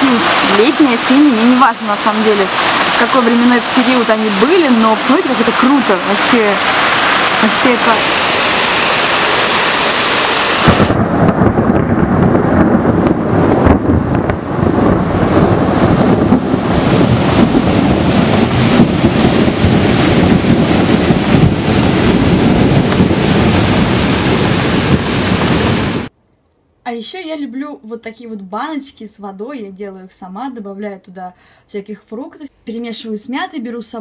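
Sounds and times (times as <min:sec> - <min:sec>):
heavy rain roaring: 0:00.0 - 0:26.1.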